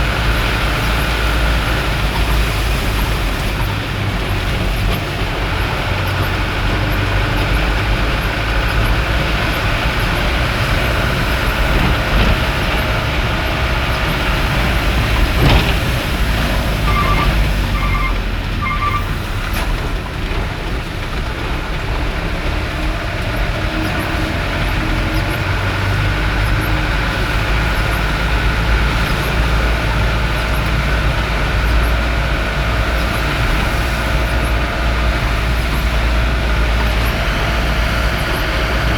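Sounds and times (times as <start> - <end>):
vehicle engine and road rumble: 0.0 - 38.9
short electronic beeps: 16.9 - 19.0.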